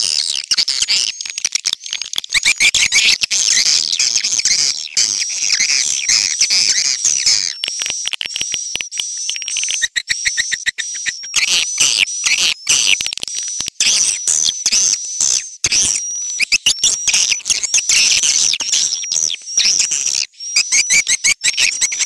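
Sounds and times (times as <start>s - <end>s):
fast clicks: 6.3s - 11.3s.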